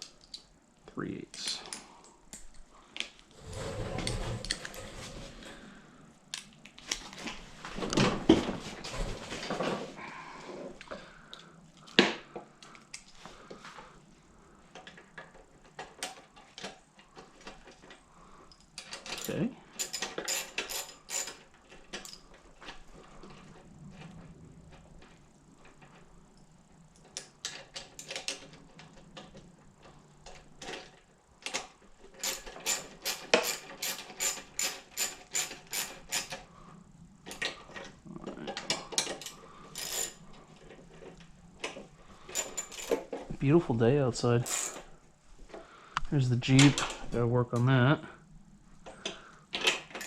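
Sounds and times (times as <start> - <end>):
hand tools clicking and tapping: 30.3 - 36.4.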